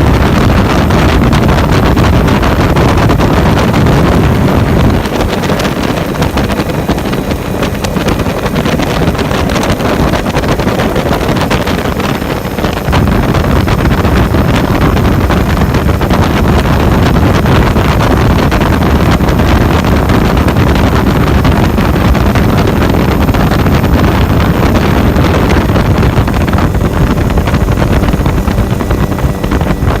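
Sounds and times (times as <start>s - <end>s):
engine running steadily: 0.0s - 30.0s
wind buffeting microphone: 0.0s - 30.0s.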